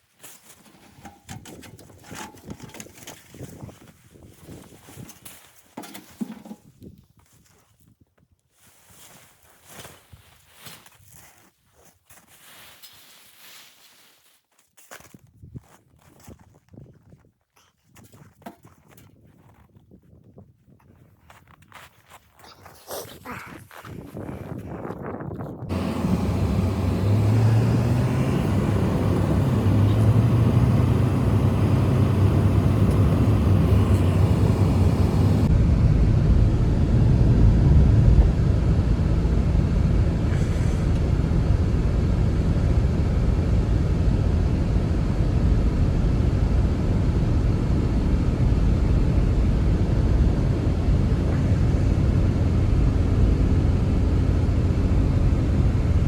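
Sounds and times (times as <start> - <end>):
blizzard wind rumbling: 23.7 - 56.0.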